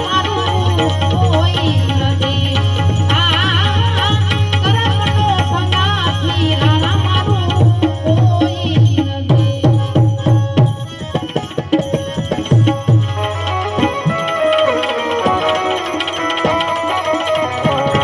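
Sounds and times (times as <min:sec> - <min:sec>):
tabla strokes: 0:00.0 - 0:18.0
wavering melodic line: 0:11.2 - 0:18.0.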